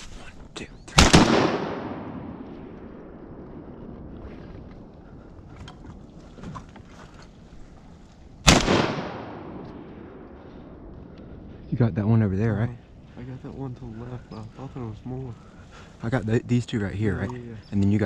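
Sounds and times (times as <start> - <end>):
shotgun blasts with echo: 1.0 - 3.8, 8.4 - 10.8
faint clicks: 9.6 - 11.3.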